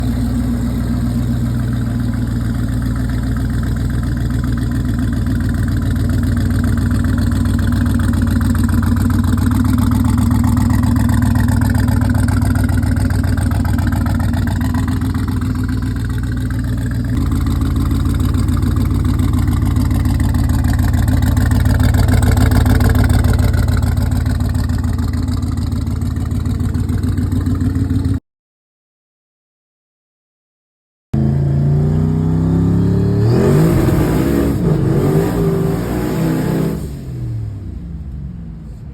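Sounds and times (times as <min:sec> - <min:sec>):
car engine running near idle: 0:00.0 - 0:28.2, 0:36.6 - 0:38.9.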